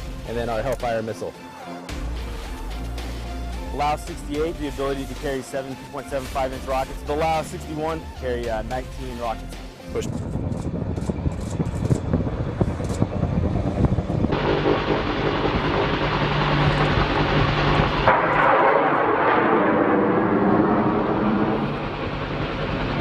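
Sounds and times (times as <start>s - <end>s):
helicopter rotor and turbine: 2.0s - 23.0s.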